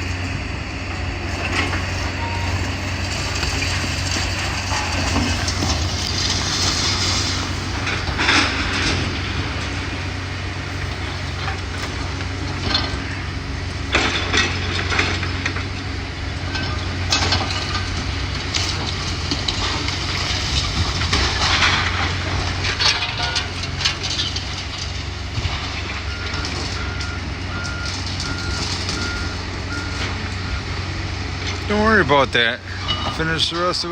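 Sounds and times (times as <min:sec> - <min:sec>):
debris crashing and crunching: 0:00.0 - 0:33.9
diesel engine running: 0:00.0 - 0:33.9
reversing alarm beeping: 0:02.1 - 0:03.0, 0:26.0 - 0:30.8.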